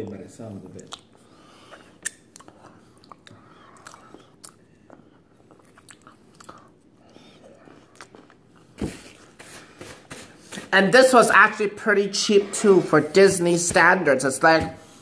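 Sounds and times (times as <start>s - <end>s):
mouth clicks: 1.7s - 5.0s.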